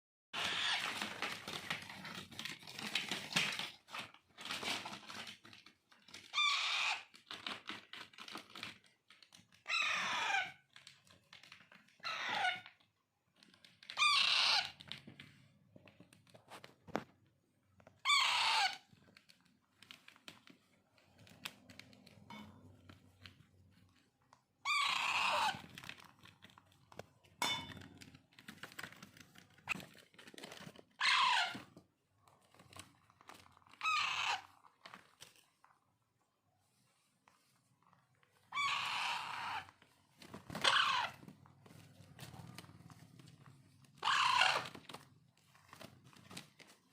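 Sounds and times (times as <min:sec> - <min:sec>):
parakeet chicks begging calls: 0:06.4 - 0:07.0, 0:09.7 - 0:10.6, 0:12.0 - 0:12.6, 0:13.9 - 0:14.8, 0:18.0 - 0:18.8, 0:24.7 - 0:25.6, 0:31.0 - 0:31.6, 0:33.8 - 0:34.4, 0:38.5 - 0:39.7, 0:40.6 - 0:41.2, 0:44.0 - 0:44.8.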